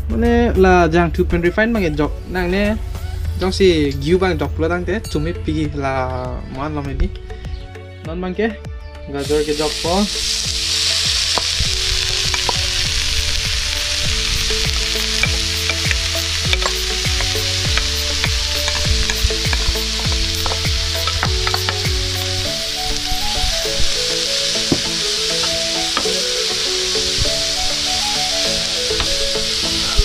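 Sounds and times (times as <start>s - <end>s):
carrots sizzling in hot oil: 9.2s - 30.0s.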